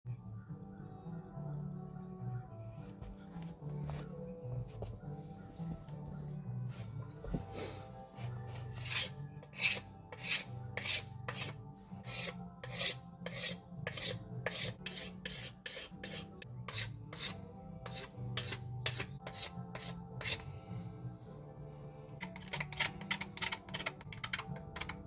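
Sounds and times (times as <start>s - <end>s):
file rasping against metal: 8.6s - 20.6s, 22.2s - 25.0s.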